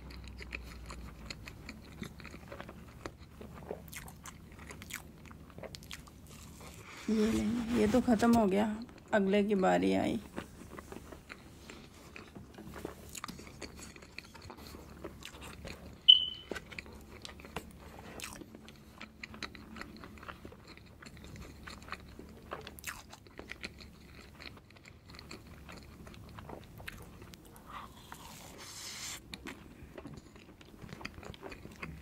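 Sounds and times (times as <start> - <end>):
man chewing and swallowing: 0.0 - 7.0, 10.2 - 32.0
sharp high-pitched squeak: 16.1 - 16.6.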